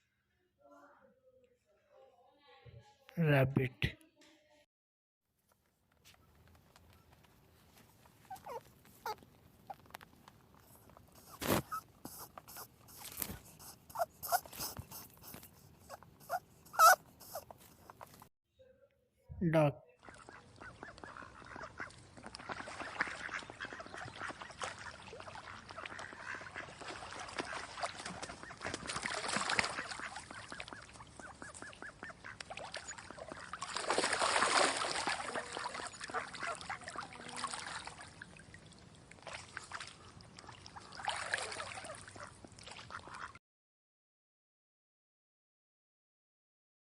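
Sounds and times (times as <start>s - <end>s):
ducks quacking: 16.2s - 17.4s, 20.0s - 33.6s, 35.0s - 37.4s, 39.9s - 43.4s.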